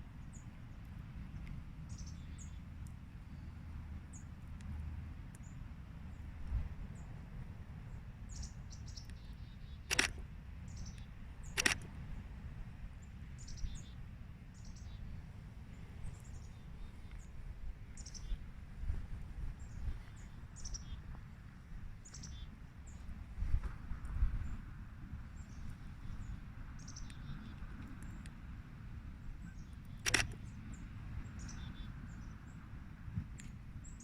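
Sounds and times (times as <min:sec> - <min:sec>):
low steady rumble: 0:00.0 - 0:34.0
small birds chirping: 0:00.2 - 0:04.7, 0:07.9 - 0:12.2, 0:13.0 - 0:18.4, 0:19.6 - 0:23.2, 0:25.3 - 0:28.4, 0:29.2 - 0:32.6
sharp clicks: 0:09.9 - 0:10.3, 0:10.9 - 0:12.0, 0:29.7 - 0:30.4.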